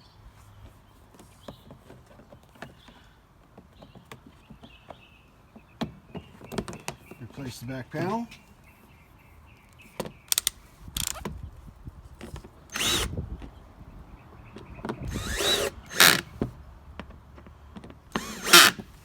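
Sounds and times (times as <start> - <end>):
cordless drill driving screws: 10.3 - 11.2, 12.7 - 13.2, 15.1 - 16.5, 18.1 - 19.0.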